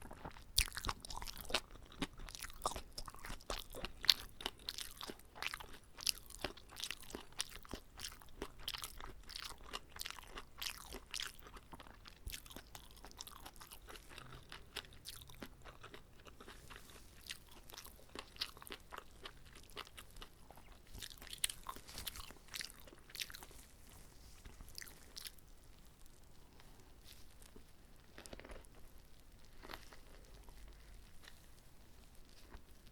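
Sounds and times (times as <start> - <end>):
chewing crunches: 0.0 - 32.9.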